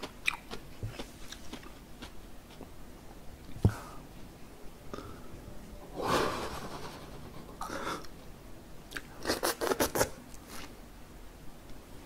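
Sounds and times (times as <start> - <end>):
chewing and crunching food: 0.0 - 2.7.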